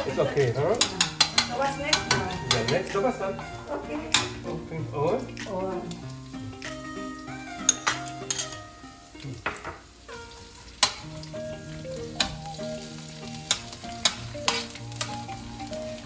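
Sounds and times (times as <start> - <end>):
onion sizzling in hot oil: 0.0 - 16.0
metal spatula scraping a wok: 13.4 - 15.2.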